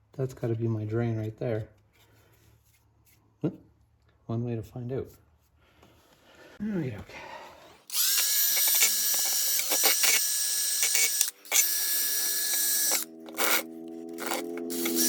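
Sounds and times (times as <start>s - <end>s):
handheld power tool running: 7.9s - 15.0s.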